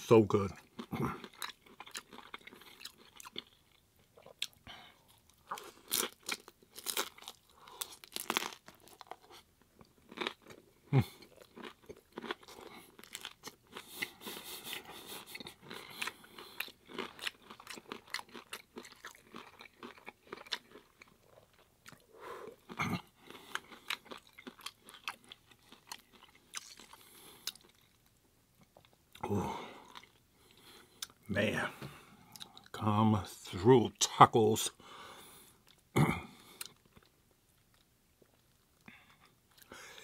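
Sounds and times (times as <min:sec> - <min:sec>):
soft chewing: 0:00.4 - 0:32.8, 0:35.2 - 0:40.0
taco shell crunching: 0:05.2 - 0:28.1.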